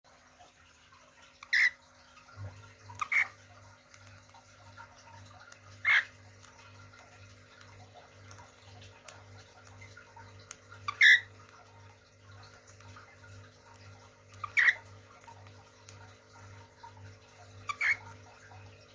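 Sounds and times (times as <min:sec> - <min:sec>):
cage birds calling loudly: 0:01.4 - 0:01.8, 0:03.0 - 0:03.4, 0:05.7 - 0:06.2, 0:10.8 - 0:11.4, 0:14.3 - 0:15.0, 0:17.6 - 0:18.3.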